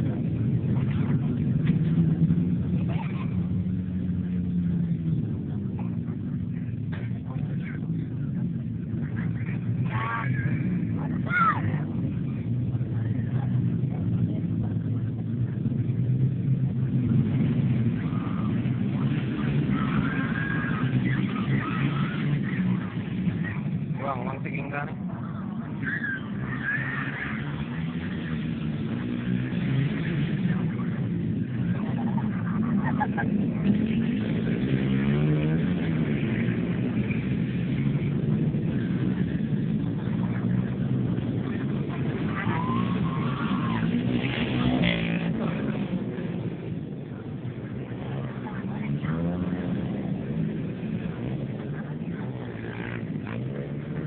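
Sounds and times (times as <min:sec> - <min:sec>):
dirt bike engines droning: 0:00.0 - 0:54.0.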